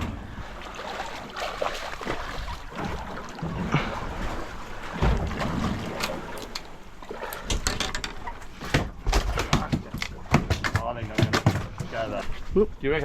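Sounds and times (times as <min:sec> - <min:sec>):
low thump: 0:00.0 - 0:00.5
water noise: 0:00.0 - 0:13.0
wind: 0:00.0 - 0:13.0
sharp knocks and clatter: 0:07.5 - 0:12.0.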